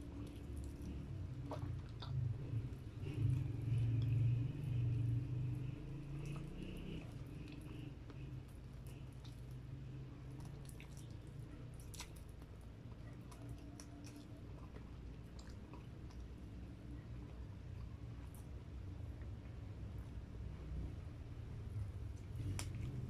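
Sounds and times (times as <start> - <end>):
close-up chewing: 0.0 - 20.2, 22.0 - 23.0
low steady hum: 0.0 - 23.0
wet mouth clicks and smacks: 6.0 - 16.3.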